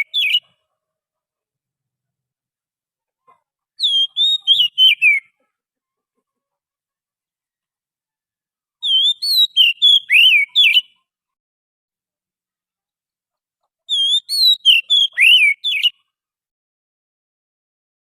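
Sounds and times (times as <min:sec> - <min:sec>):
bird whistled song: 0:00.0 - 0:00.5, 0:03.8 - 0:05.4, 0:08.8 - 0:11.0, 0:13.9 - 0:16.1.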